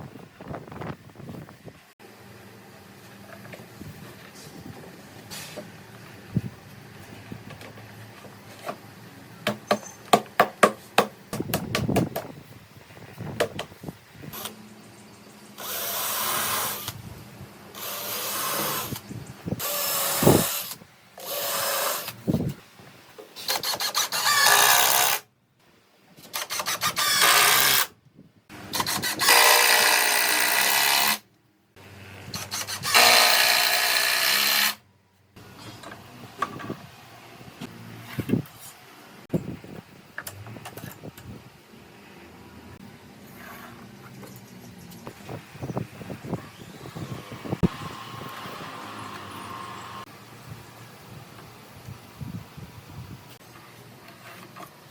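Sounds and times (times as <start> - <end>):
handheld power tool running: 32.3 - 34.8.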